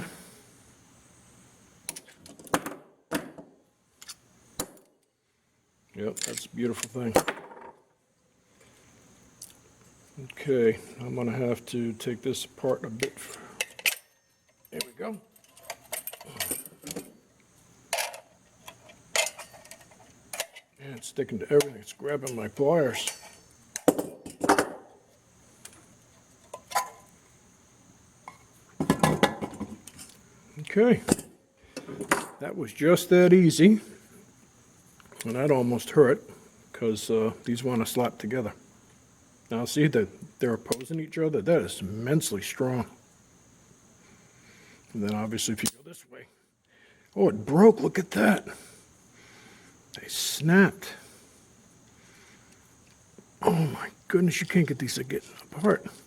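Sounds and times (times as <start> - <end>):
magnets and pliers clinking on metal: 6.1 - 7.0, 13.0 - 17.0, 18.0 - 23.9, 45.1 - 46.0.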